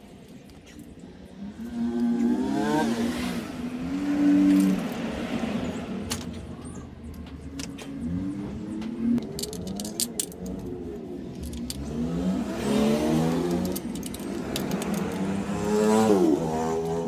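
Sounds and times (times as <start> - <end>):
motorcycle engine revving: 1.4 - 17.0
light clicks and rattles: 6.0 - 17.0.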